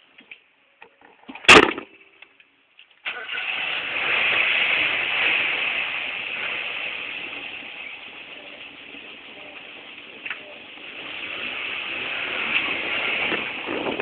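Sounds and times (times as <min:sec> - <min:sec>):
car engine starting and running: 0:03.0 - 0:13.8.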